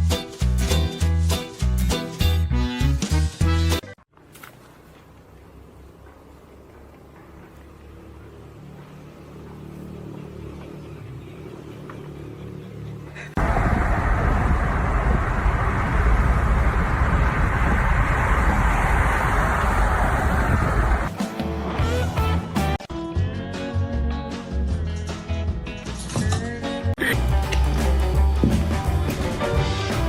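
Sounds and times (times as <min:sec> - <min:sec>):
motor vehicle hum: 0:04.0 - 0:22.8, 0:27.1 - 0:30.0
loud rushing noise: 0:13.4 - 0:21.1.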